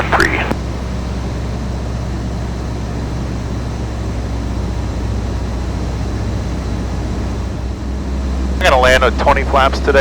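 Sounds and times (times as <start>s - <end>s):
aircraft engine and propeller drone: 0.0s - 10.0s.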